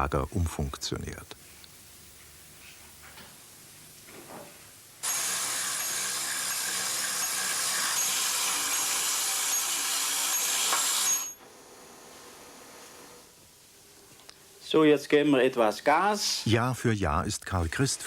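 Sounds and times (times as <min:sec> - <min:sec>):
small electric motor whirring: 0:05.0 - 0:11.4.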